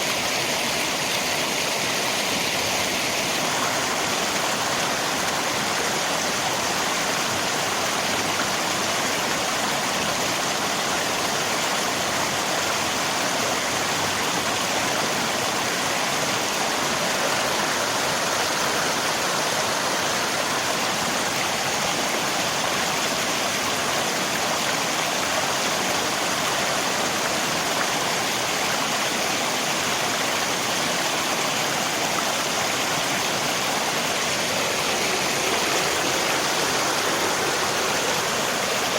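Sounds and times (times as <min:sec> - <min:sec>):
river water rushing: 0:00.0 - 0:38.9
rain falling: 0:31.2 - 0:38.9.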